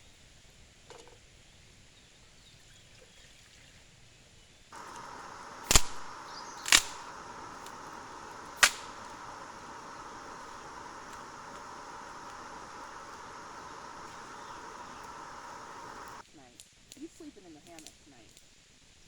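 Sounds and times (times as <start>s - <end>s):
steady hiss: 4.8s - 16.2s.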